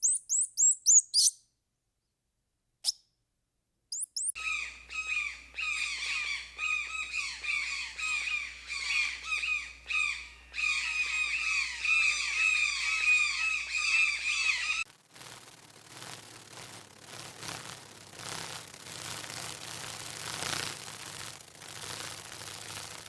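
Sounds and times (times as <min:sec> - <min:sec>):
squawking animal calls: 0:04.2 - 0:14.8
rustling noise: 0:14.8 - 0:23.0.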